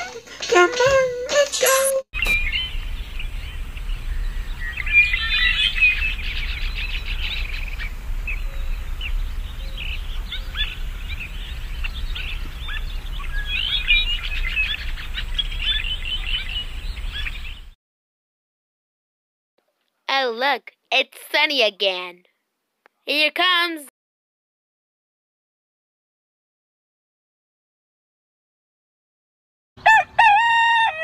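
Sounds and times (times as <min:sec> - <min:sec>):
songbirds chirping and singing: 0:02.2 - 0:17.7
steady low rumble: 0:02.2 - 0:17.8.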